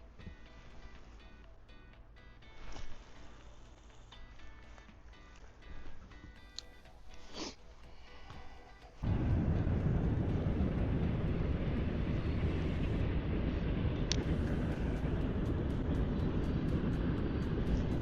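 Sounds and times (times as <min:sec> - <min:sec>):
wind buffeting microphone: 0:09.0 - 0:18.0.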